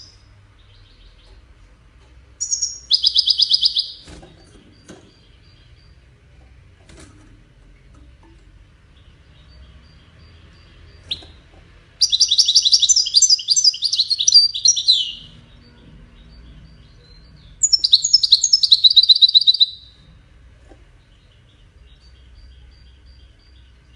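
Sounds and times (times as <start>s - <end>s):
finch singing twittering phrases: 2.4s - 6.2s, 8.9s - 20.0s.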